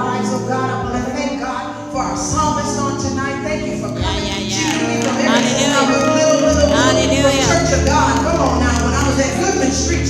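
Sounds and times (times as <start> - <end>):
held notes of worship music: 0.0 - 10.0
voices singing: 3.5 - 10.0.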